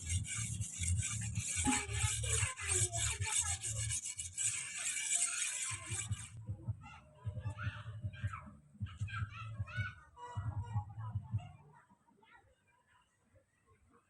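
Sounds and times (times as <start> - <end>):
blade rubbing on sharpening stone: 0.0 - 6.4.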